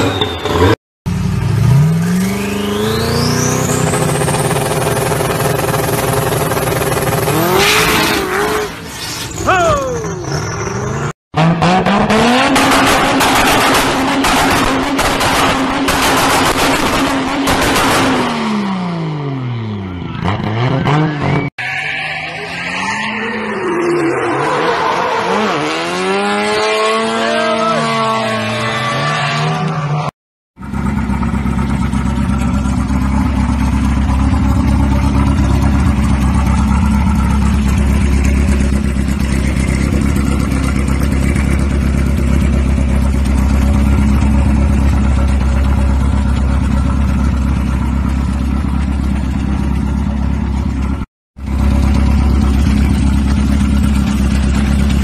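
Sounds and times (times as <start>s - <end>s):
car engine revving: 0.5s - 8.8s, 10.2s - 19.5s, 22.1s - 55.0s.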